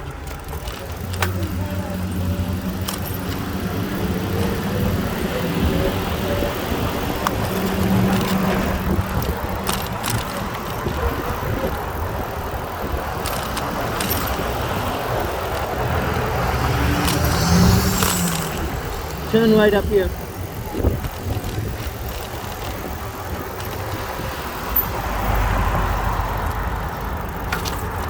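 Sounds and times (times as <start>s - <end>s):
bicycle tyre noise: 0.0s - 28.0s
car engine hum: 0.0s - 28.0s
wind rumbling on microphone: 4.1s - 26.2s.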